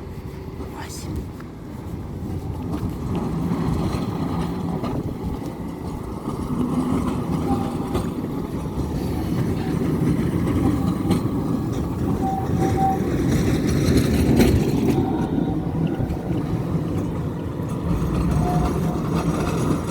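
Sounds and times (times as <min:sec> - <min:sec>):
tram low rumble: 0:00.0 - 0:19.9.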